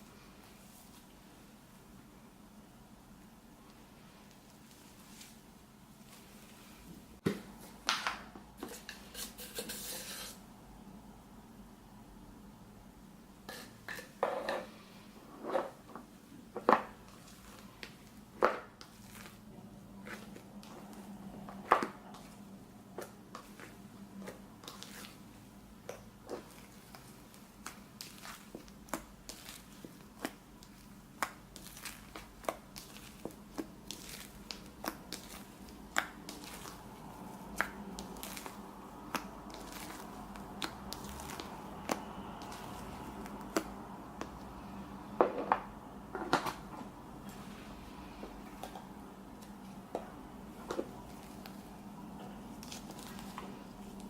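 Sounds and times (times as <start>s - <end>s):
utensil scraping a mixing bowl: 8.6s - 10.4s
slime squishing: 16.6s - 45.0s, 47.0s - 54.0s.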